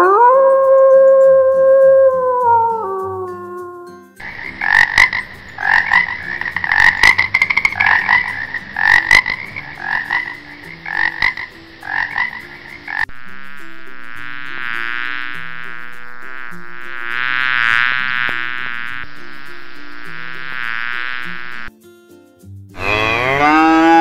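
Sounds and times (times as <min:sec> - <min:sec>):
soft background music: 0:00.0 - 0:24.0
frog croaking: 0:04.2 - 0:13.3, 0:14.2 - 0:21.7
honeybees buzzing: 0:04.2 - 0:21.7.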